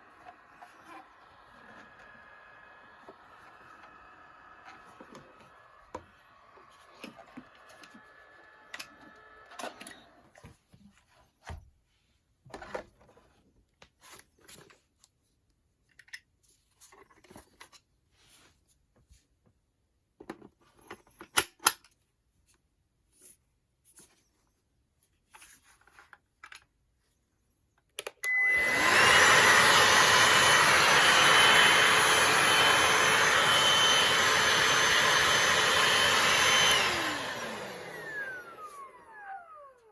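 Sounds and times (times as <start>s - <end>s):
handheld vacuum cleaner whining: 0.0s - 10.5s, 28.0s - 39.9s.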